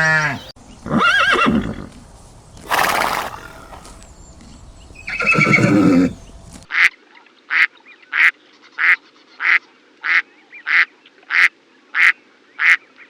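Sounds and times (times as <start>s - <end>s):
breathy noise burst: 2.7s - 4.0s.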